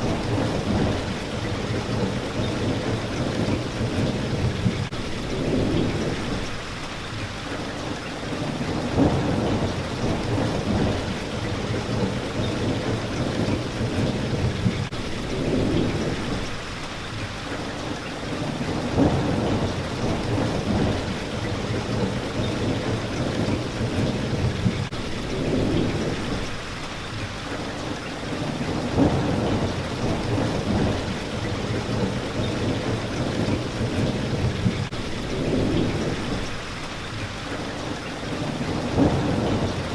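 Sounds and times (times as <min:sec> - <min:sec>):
thunder rumbling: 0:00.0 - 0:06.6, 0:08.3 - 0:16.6, 0:18.3 - 0:26.6, 0:28.3 - 0:37.0, 0:38.3 - 0:39.9
rain hitting a window: 0:00.0 - 0:39.9
sharp thunder cracks: 0:08.8 - 0:12.1, 0:18.8 - 0:22.1, 0:28.8 - 0:34.8, 0:38.8 - 0:39.9.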